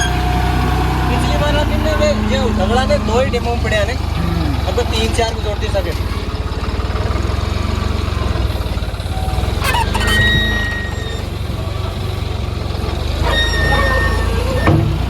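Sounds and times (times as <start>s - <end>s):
short high squealing tones: 0.0s - 0.8s, 9.0s - 11.6s, 13.0s - 15.0s
diesel engine running: 0.0s - 15.0s.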